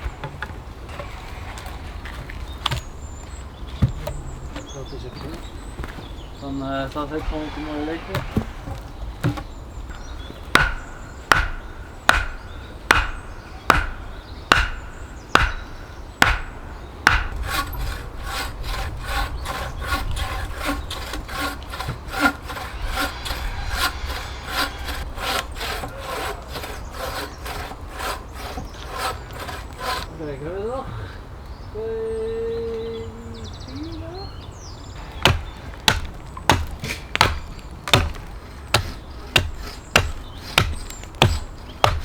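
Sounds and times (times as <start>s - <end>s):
hand saw cutting log: 6.8s - 15.6s, 16.2s - 30.4s, 35.2s - 42.0s.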